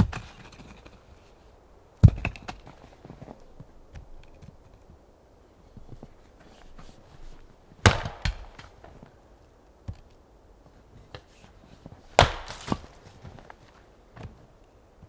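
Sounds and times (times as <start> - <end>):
axe striking wood: 7.8 - 9.0, 12.1 - 13.1.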